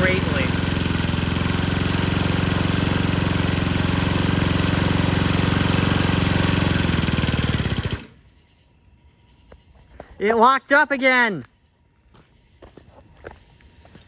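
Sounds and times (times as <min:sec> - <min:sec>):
lawnmower engine running: 0:00.0 - 0:08.2.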